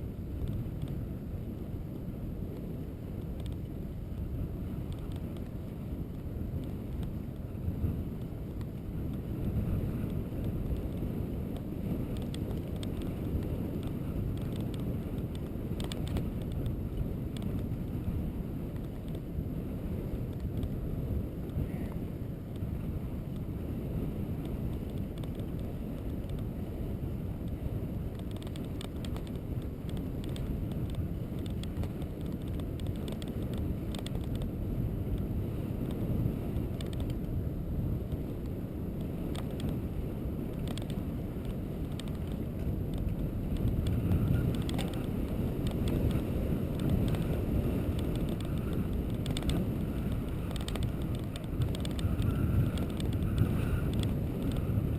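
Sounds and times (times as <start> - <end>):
road rumble: 0.0 - 54.9
wind buffeting microphone: 0.0 - 54.9
small clicks and rattles: 3.2 - 3.7, 4.8 - 7.5, 10.0 - 17.8, 18.7 - 19.3, 24.4 - 26.5, 27.4 - 37.4, 38.1 - 39.9, 40.5 - 54.9.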